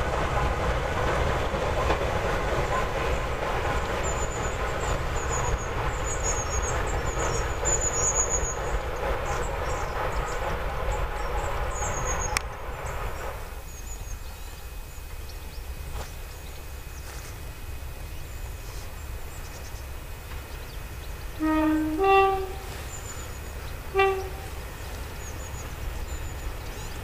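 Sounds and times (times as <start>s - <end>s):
outdoor background noise: 0.0s - 27.0s
train rumbling in tunnel: 0.0s - 27.0s
small birds chirping: 18.0s - 21.4s, 22.4s - 27.0s.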